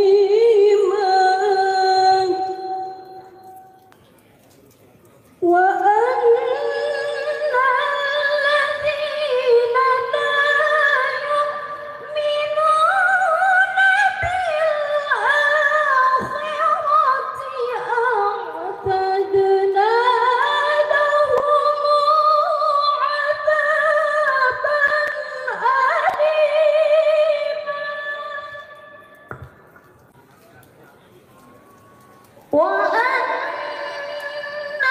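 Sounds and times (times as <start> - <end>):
person reciting in melodic chant: 32.5 - 34.9.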